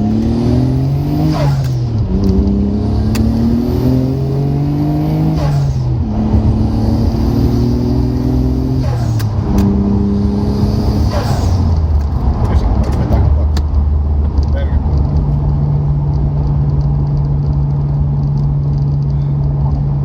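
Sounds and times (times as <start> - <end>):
car engine accelerating through gears: 0.0 - 20.0.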